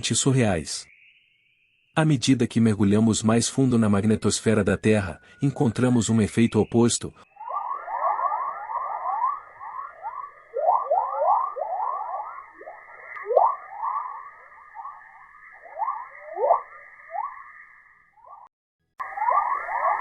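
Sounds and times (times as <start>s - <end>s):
steady high hum: 7.4s - 17.5s.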